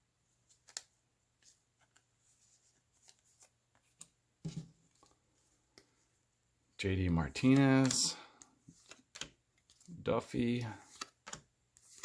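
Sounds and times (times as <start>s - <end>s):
cards clicking and rustling: 0.5s - 2.1s, 7.3s - 12.0s.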